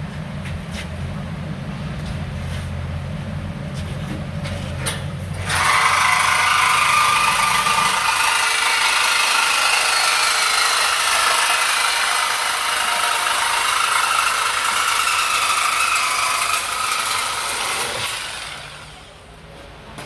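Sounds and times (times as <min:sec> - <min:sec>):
power tool cutting steel pipe: 0:05.4 - 0:19.2.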